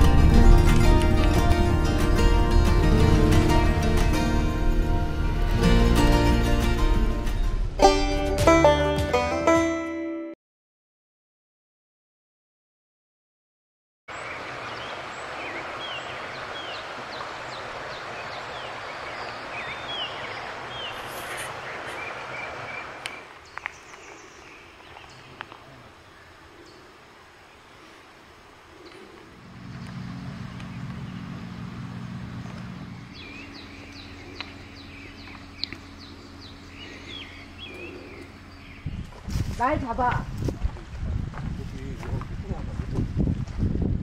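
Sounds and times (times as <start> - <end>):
steady low hum: 0.0 - 8.0, 27.8 - 43.1
small birds chirping: 14.1 - 40.2
outdoor background hiss: 14.1 - 41.9.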